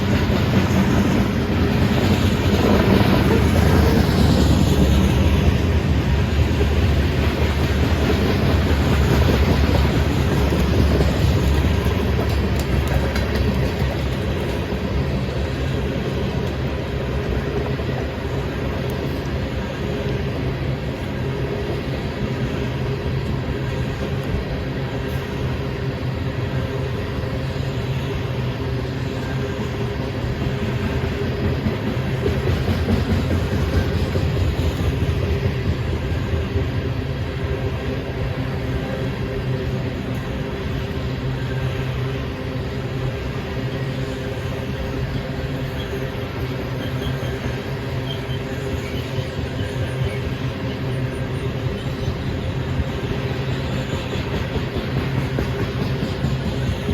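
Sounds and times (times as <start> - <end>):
train wheels rolling on rails: 0.0 - 56.9.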